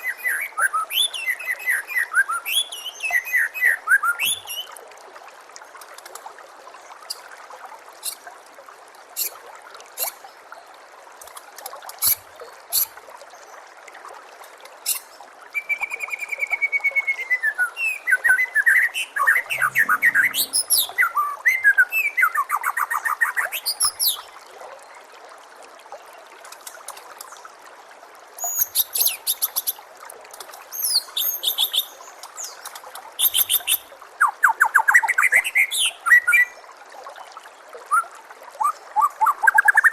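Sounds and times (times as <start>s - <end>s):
bird whistled phrases and trills: 0.0s - 4.7s, 14.9s - 24.3s
running water trickling: 0.0s - 39.9s.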